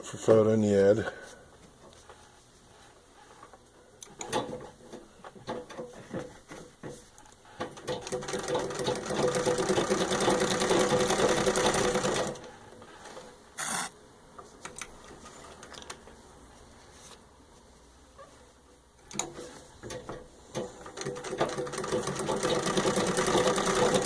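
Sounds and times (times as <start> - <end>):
sewing machine stitching: 7.6 - 12.4, 20.5 - 24.0.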